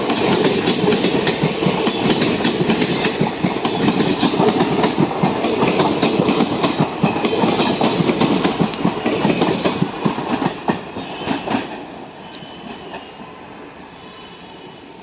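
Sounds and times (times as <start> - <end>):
train wheels clattering: 0.0 - 11.8
train rumble: 0.0 - 15.0.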